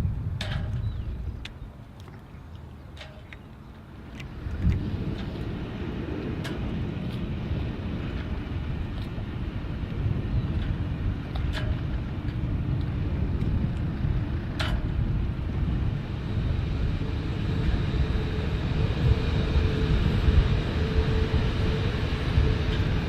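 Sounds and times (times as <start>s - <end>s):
engine rumbling: 0.0s - 23.0s.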